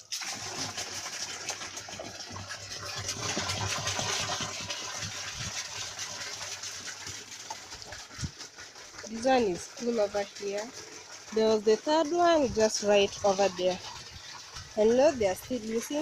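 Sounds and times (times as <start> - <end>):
water pouring into a drum: 0.0 - 16.0.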